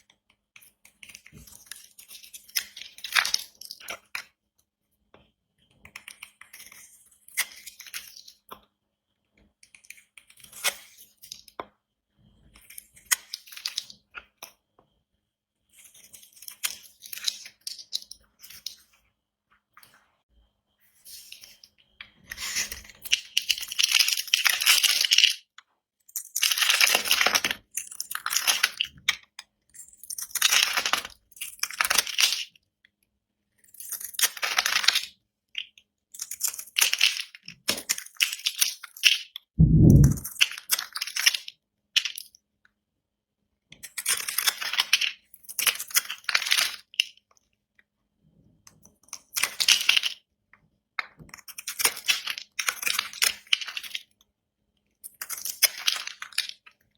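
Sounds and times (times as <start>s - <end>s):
low thump: 39.6s - 40.2s.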